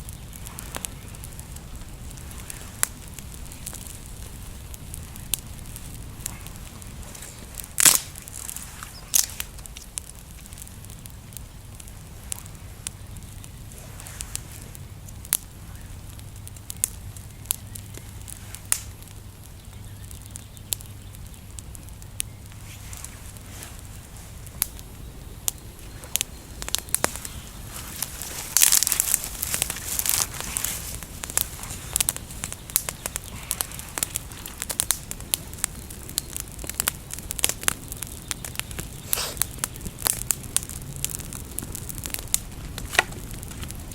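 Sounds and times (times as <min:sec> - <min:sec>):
campfire crackling and popping: 0:00.0 - 0:43.9.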